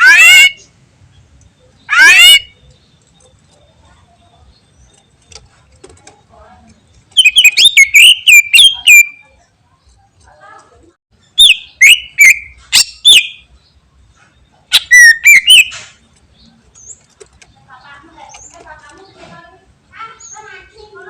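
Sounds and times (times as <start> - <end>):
bird singing rapid whistled notes: 6.8 - 9.4, 11.2 - 13.8, 14.4 - 17.0.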